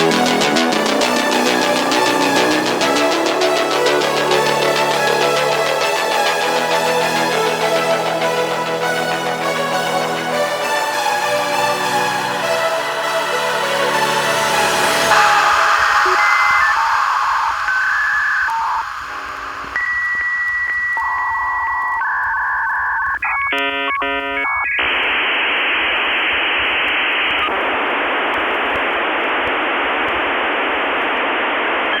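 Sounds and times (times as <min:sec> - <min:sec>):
dial-up modem connecting: 0:14.2 - 0:32.0.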